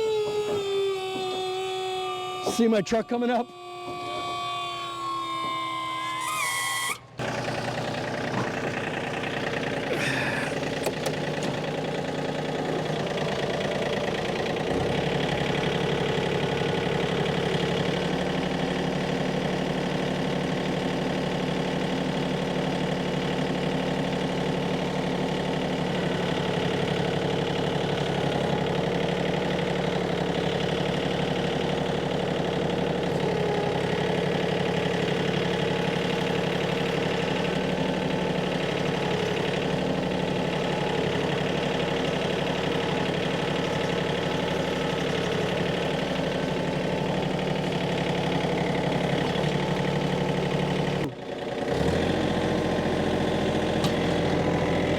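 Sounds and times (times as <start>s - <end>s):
vehicle engine running: 7.0s - 54.9s.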